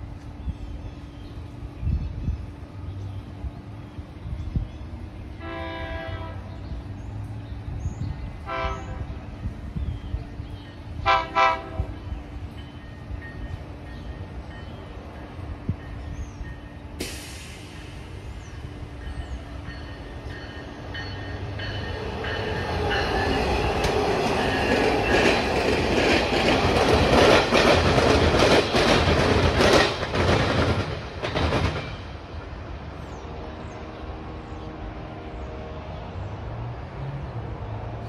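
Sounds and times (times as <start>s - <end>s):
train rumbling past: 0.0s - 38.0s
wheels clacking over rail joints: 19.0s - 32.2s.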